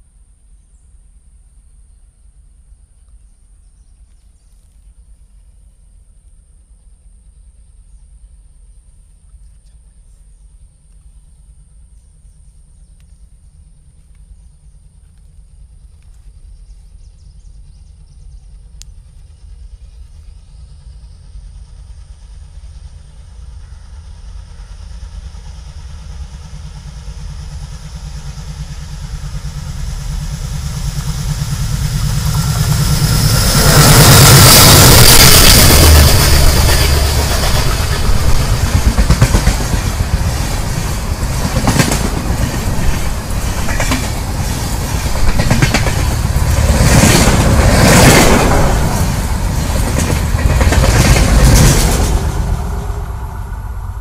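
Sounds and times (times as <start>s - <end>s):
diesel locomotive engine rumble: 0.0s - 54.0s
train wheel clatter on rails: 21.6s - 53.3s.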